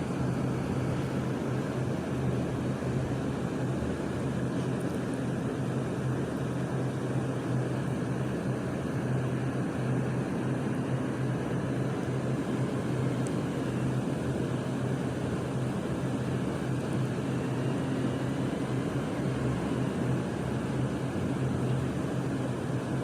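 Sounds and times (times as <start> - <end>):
diesel truck engine running: 0.0 - 6.5, 11.6 - 22.8.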